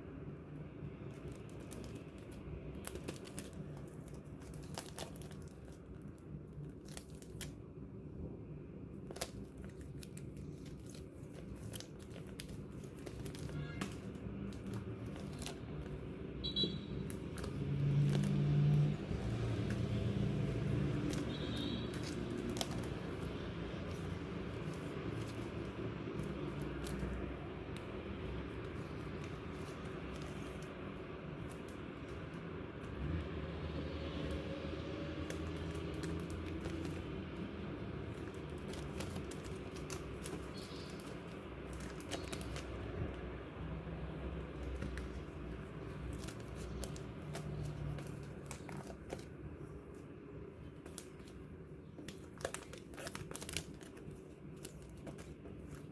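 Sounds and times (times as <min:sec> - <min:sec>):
low background hum: 0:00.0 - 0:55.9
passing vehicle engine rumble: 0:14.1 - 0:49.0.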